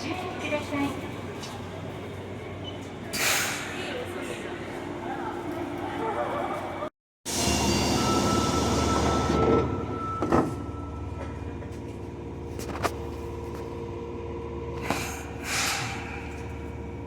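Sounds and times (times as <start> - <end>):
door closing warning tone: 7.3 - 11.2
standing train humming: 7.3 - 17.0.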